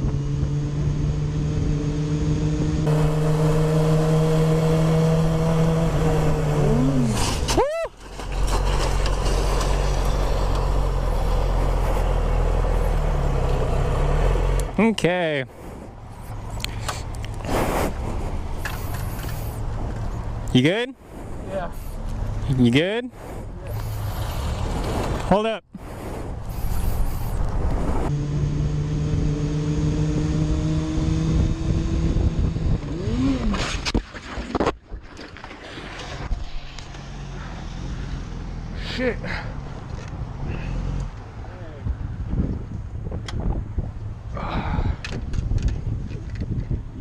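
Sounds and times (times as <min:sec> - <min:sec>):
motorcycle engine running: 0:00.0 - 0:07.0
wind and road noise: 0:00.0 - 0:47.0
wind noise on microphone: 0:23.1 - 0:35.1, 0:41.7 - 0:47.0.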